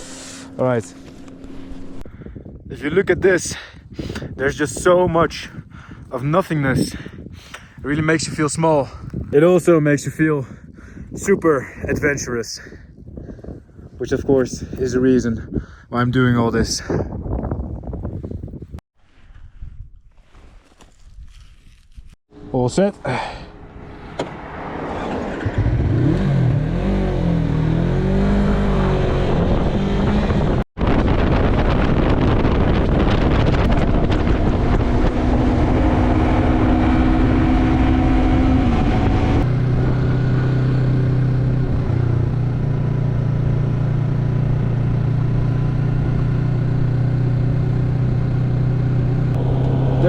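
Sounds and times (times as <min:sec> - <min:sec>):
motorcycle engine accelerating: 0:00.0 - 0:02.5, 0:23.1 - 0:50.0
wind noise: 0:00.0 - 0:22.2, 0:25.0 - 0:46.3.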